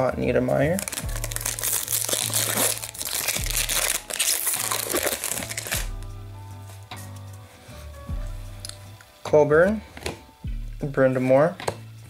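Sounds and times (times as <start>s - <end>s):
background music with bass beat: 0.6s - 9.0s, 10.4s - 11.1s
foil wrapper crinkling and tearing: 0.7s - 6.0s.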